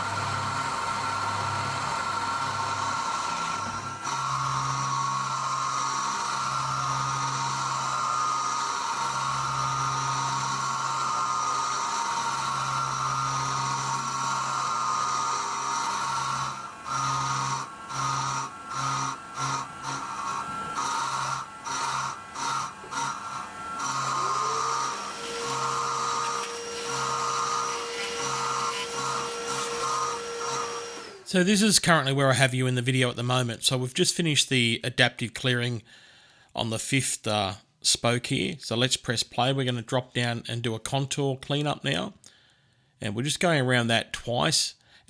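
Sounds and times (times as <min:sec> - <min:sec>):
milling machine cutting metal: 0:00.0 - 0:31.4.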